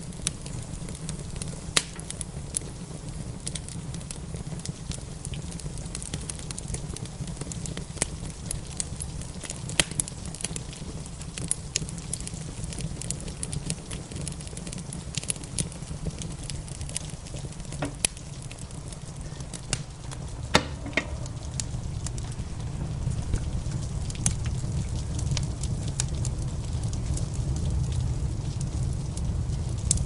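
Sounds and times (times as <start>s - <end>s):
wood fire crackling and popping: 0.0s - 30.0s
steady low rumble: 14.0s - 30.0s.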